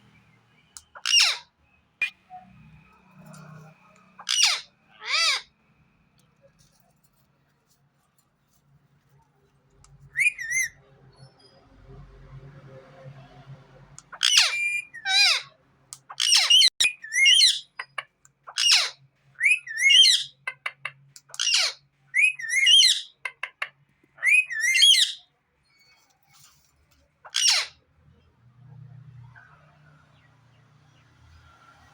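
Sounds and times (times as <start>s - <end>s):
parrot shrill calls and whistles: 0.9s - 2.2s, 4.2s - 5.5s, 10.0s - 10.8s, 14.1s - 17.9s, 18.5s - 20.4s, 21.3s - 23.2s, 24.2s - 26.0s, 27.2s - 27.8s.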